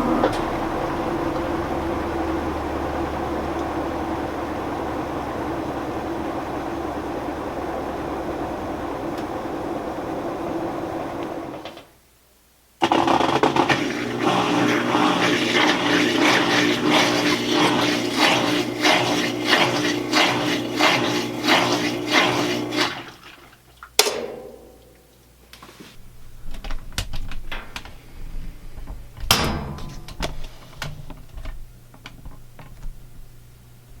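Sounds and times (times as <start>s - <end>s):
washing machine motor hum: 0.0s - 11.8s, 12.8s - 25.2s.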